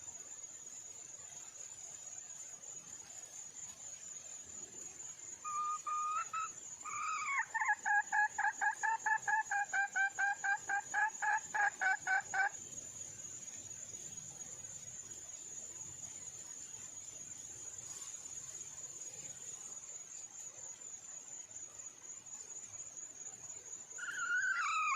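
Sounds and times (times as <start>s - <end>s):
hen calling: 24.0s - 24.9s.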